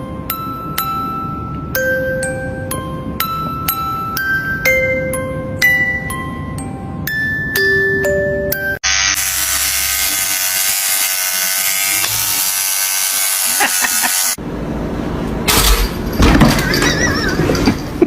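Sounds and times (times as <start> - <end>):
small electric motor buzzing: 8.8 - 14.4.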